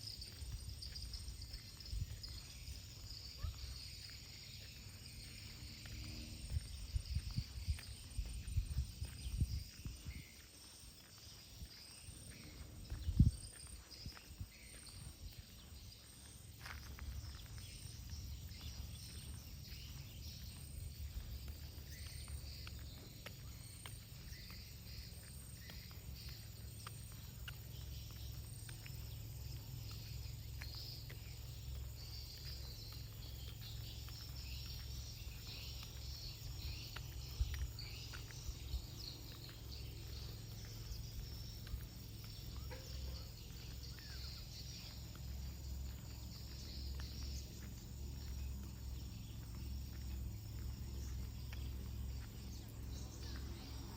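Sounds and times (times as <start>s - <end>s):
faint insects chirping: 0.0s - 53.9s
wind rumble on microphone: 0.4s - 3.8s, 5.5s - 10.5s, 11.5s - 16.0s.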